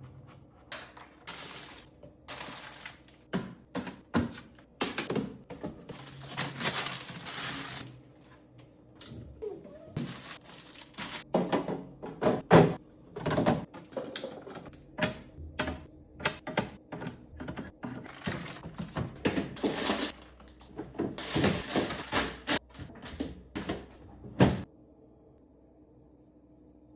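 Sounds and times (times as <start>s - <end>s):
containers clicking and knocking on shelves: 2.3s - 7.1s, 11.2s - 24.6s.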